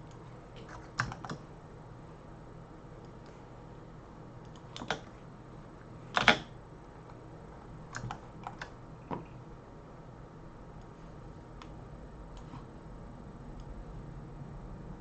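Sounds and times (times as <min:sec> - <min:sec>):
computer keyboard and mouse clicks: 0:00.0 - 0:01.4, 0:04.4 - 0:05.1, 0:06.1 - 0:06.5, 0:07.9 - 0:09.3.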